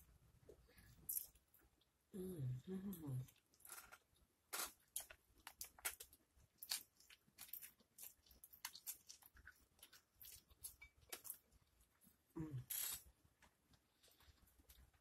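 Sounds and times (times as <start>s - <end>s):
chewing a soft sandwich: 3.2s - 15.0s.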